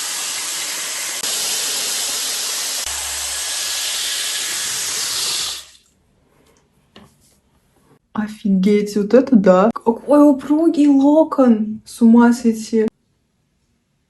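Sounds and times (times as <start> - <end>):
hair styler blowing: 0.0 - 5.8.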